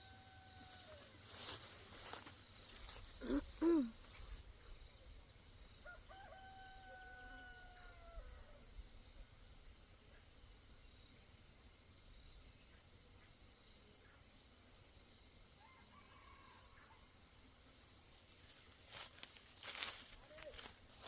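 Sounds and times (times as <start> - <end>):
rooster crowing: 0.0 - 1.2, 5.8 - 8.6, 15.6 - 17.0
insects buzzing: 0.0 - 21.0.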